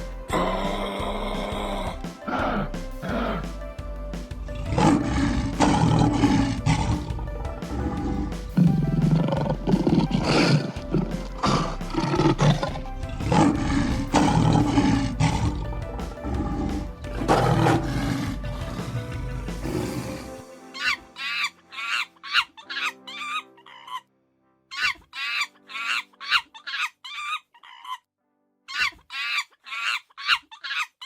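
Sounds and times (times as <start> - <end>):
background music: 0.0 - 26.8
tiger roaring: 4.6 - 8.4, 11.3 - 20.3.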